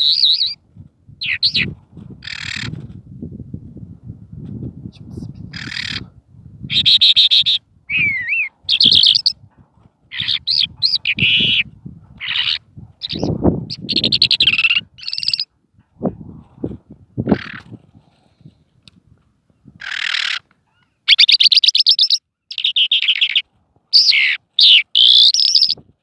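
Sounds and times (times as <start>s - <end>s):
songbird singing: 0.0s - 2.8s, 4.7s - 9.4s, 10.1s - 15.5s, 19.5s - 25.8s.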